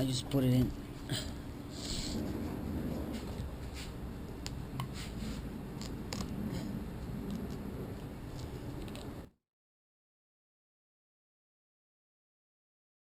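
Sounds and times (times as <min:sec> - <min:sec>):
hands rubbing fabric: 0:01.8 - 0:04.1.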